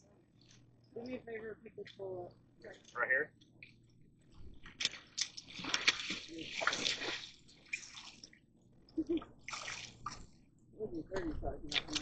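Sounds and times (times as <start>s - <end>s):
water splashing and sloshing: 2.7s - 10.5s, 11.2s - 12.0s.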